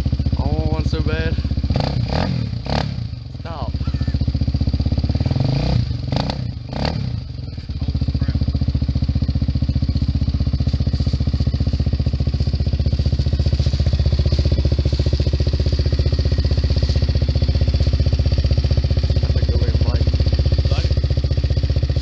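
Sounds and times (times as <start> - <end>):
quad bike engine idling: 0.0 - 22.0.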